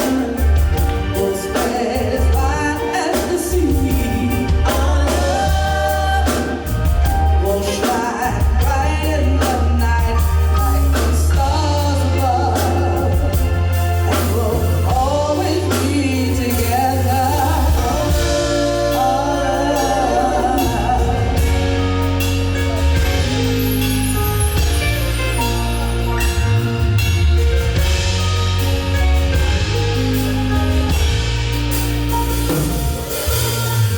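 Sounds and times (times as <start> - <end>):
person singing: 0.0 - 23.8
bass and drums: 0.0 - 33.9.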